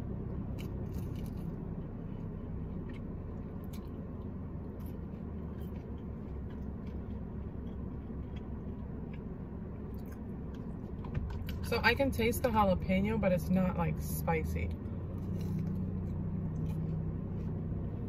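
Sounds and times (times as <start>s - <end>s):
low rumble: 0.0s - 18.0s
person chewing: 0.5s - 10.9s, 15.1s - 17.6s.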